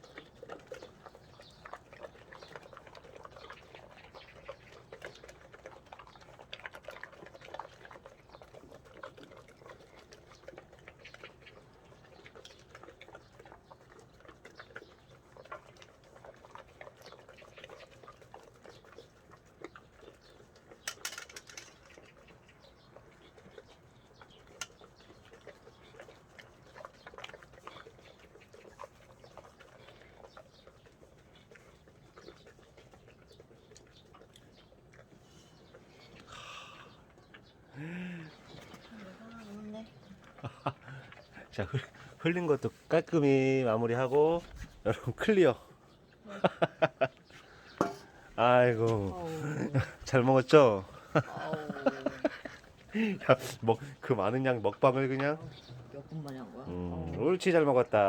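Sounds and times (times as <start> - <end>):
dog chewing and smacking: 0.0 - 36.3, 38.5 - 45.4, 46.8 - 58.0.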